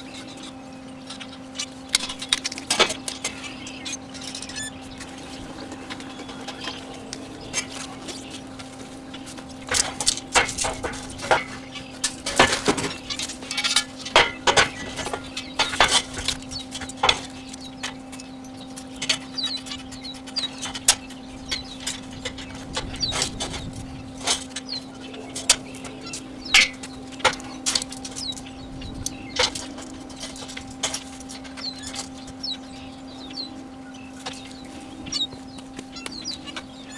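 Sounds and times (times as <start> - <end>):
steady hum: 0.0 - 36.9
metal clanks and taps: 5.9 - 32.5.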